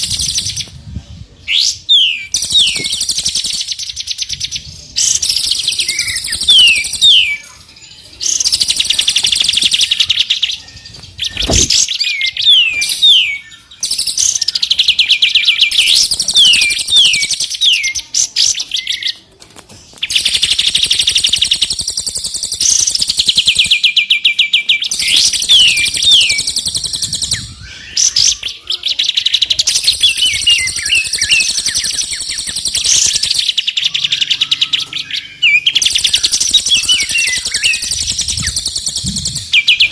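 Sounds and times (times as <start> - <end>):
songbirds trilling: 0.0 - 39.9
descending whistled bird notes: 20.1 - 39.9.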